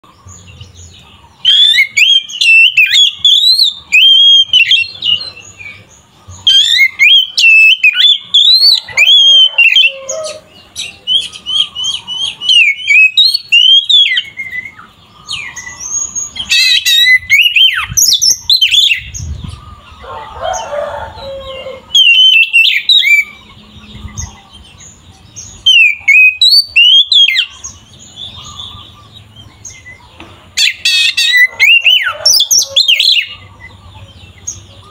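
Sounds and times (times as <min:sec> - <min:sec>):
bird singing whistled trills: 0:01.4 - 0:19.6, 0:21.8 - 0:30.0.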